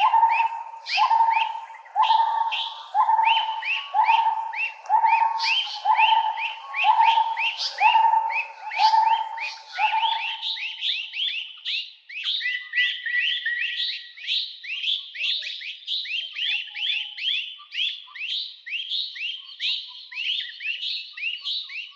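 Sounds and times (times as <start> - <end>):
fainter bird calls: 0.0 - 11.6
chorus of rising bird whistles: 0.0 - 21.9.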